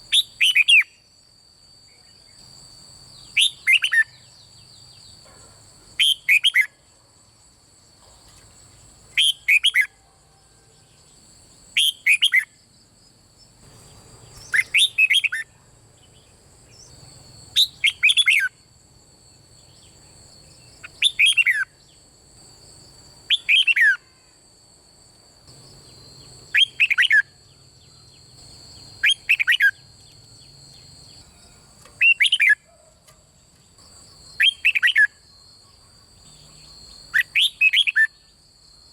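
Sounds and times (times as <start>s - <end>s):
bird singing whistled notes: 0.0s - 1.1s, 3.1s - 5.2s, 6.0s - 6.8s, 9.1s - 10.0s, 11.7s - 12.6s, 13.8s - 18.6s, 19.6s - 22.0s, 23.3s - 24.2s, 25.5s - 32.8s, 33.9s - 38.4s.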